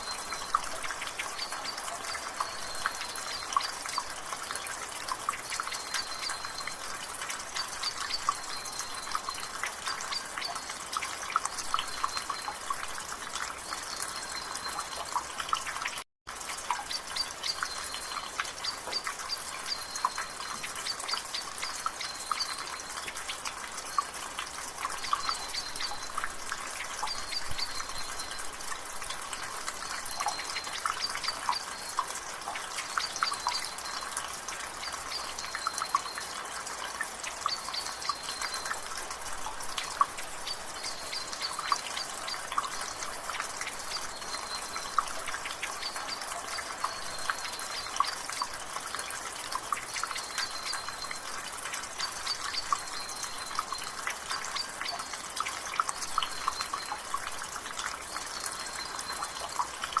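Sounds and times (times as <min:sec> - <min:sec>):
water dripping from rain gutter: 0:00.0 - 1:00.0.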